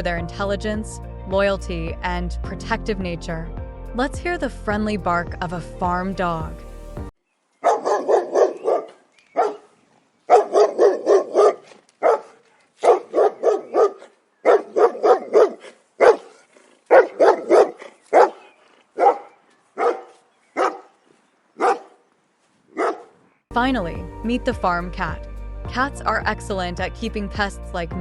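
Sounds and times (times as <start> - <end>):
dog barking: 7.6 - 9.7, 10.3 - 21.0, 21.6 - 22.0, 22.7 - 23.2.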